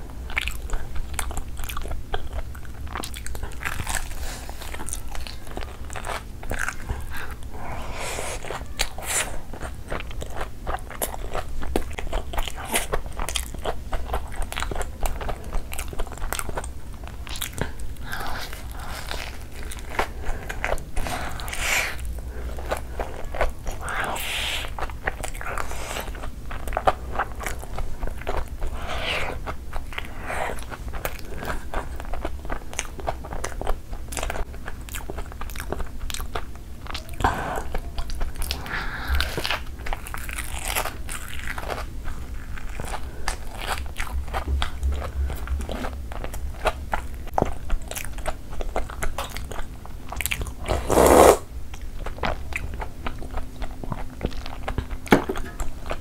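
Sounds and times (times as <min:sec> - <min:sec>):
crunchy biting and chewing: 0:00.3 - 0:56.0
wet mouth clicks: 0:50.7 - 0:51.4.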